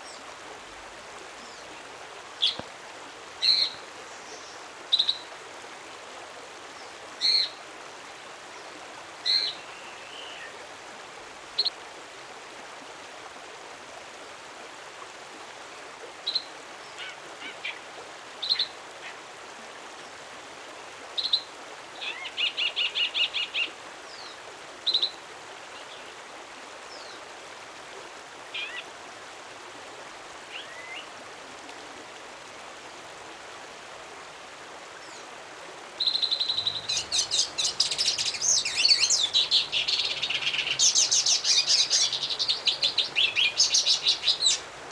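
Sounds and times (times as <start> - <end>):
steady background hiss: 0.0 - 44.9
songbird calling: 2.4 - 2.6, 3.4 - 5.3, 36.0 - 44.9.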